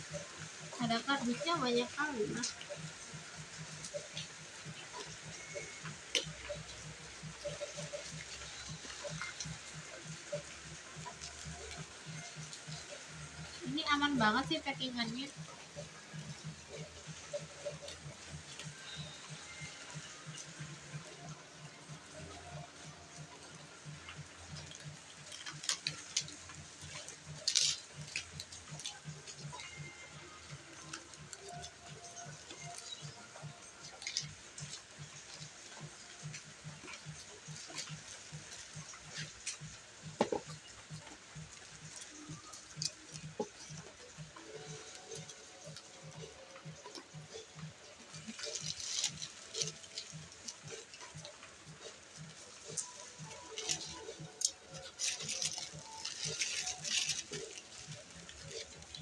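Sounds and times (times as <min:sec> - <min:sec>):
packaging crackling and clicking: 0:14.5 - 0:59.0
packaging ripping: 0:52.6 - 0:59.0.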